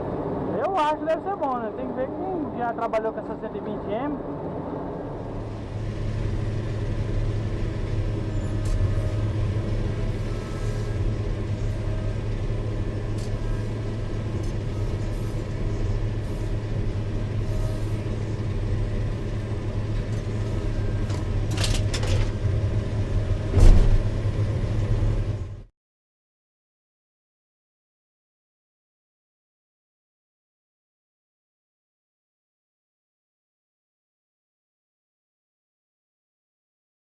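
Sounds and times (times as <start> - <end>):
diesel engine running: 0.0 - 25.7.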